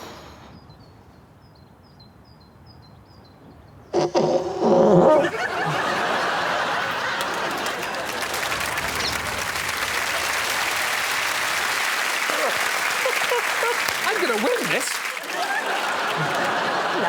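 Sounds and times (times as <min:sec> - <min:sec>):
loud fart noise: 0:03.9 - 0:05.6
audience laughter: 0:05.1 - 0:17.0
audience applause: 0:05.2 - 0:17.0.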